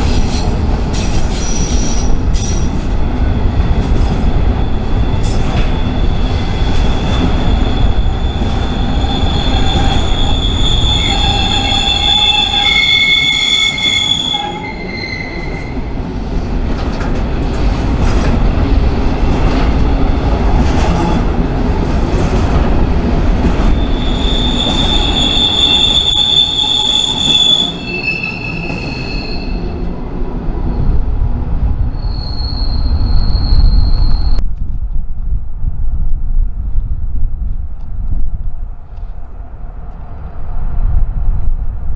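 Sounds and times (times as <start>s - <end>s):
steel wheels squealing on rails: 0.0s - 16.0s, 23.4s - 30.0s, 31.9s - 34.4s
freight train rumbling past: 0.0s - 34.4s.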